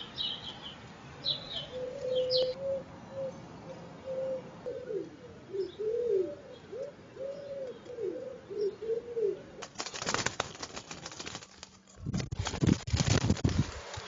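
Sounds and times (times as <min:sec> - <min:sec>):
pigeon cooing: 0:01.3 - 0:03.4, 0:04.0 - 0:09.6
pigeon wings flapping: 0:09.6 - 0:14.0.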